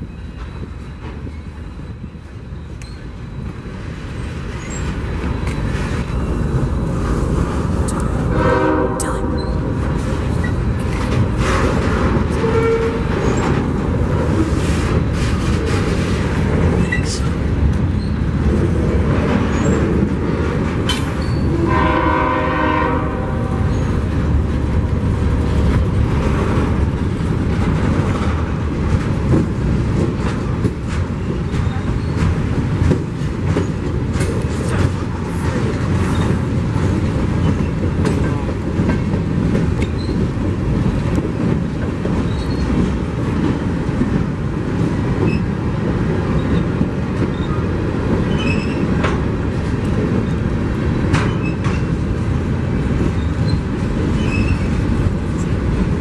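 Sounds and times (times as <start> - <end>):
train wheels rumbling and clicking: 0.0 - 56.0
short train horn blast: 8.3 - 9.7, 12.4 - 13.1, 21.5 - 23.9.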